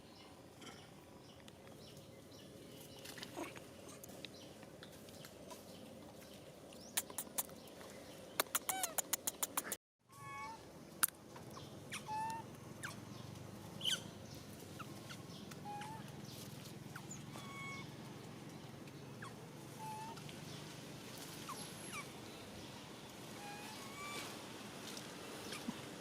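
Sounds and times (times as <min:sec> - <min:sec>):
low outdoor background: 0:00.0 - 0:26.0
young macaque whimpering coos: 0:08.4 - 0:10.6, 0:17.0 - 0:17.8.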